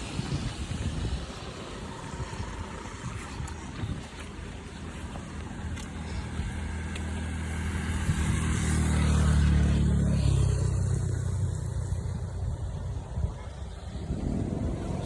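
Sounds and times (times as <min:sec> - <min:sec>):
vehicle engine passing by: 0:06.0 - 0:15.0.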